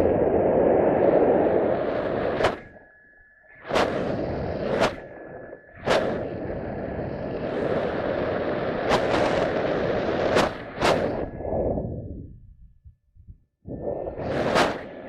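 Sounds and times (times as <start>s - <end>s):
wind rushing over microphone: 0.0s - 2.9s, 3.5s - 15.0s
wind buffeting pops: 5.8s - 15.0s.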